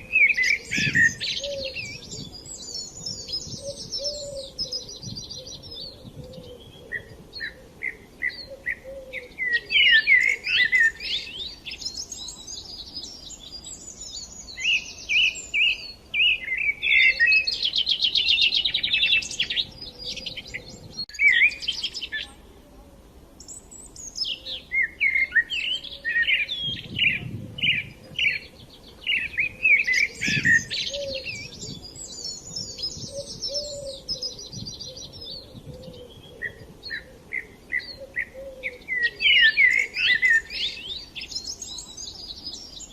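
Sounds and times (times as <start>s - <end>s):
songbirds singing and chirping: 0.0s - 42.9s.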